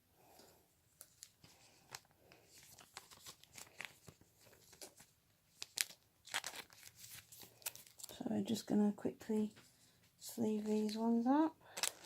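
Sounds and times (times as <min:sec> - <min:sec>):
foil wrapper crinkling: 0:01.0 - 0:08.2, 0:11.7 - 0:12.0.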